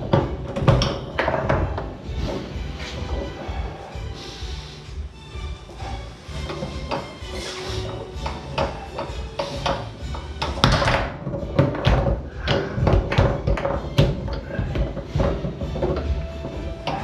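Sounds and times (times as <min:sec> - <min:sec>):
foosball ball cracking: 0:00.0 - 0:02.5, 0:08.2 - 0:17.0
foosball rods knocking: 0:00.0 - 0:03.6, 0:06.3 - 0:17.0.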